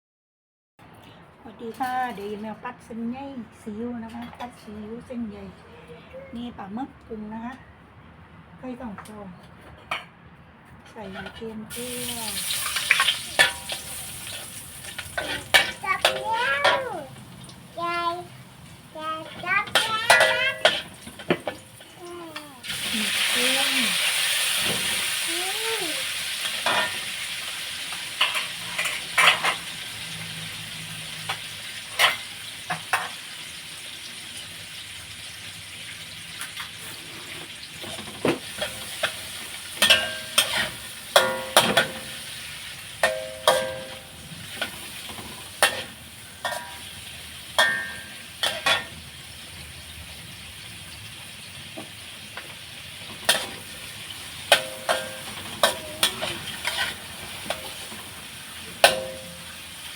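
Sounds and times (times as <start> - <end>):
food sizzling in a pan: 11.7 - 59.9
spatula knocking and scraping pan: 12.6 - 17.1, 19.1 - 22.0, 39.8 - 42.2, 53.0 - 53.8, 54.4 - 58.1.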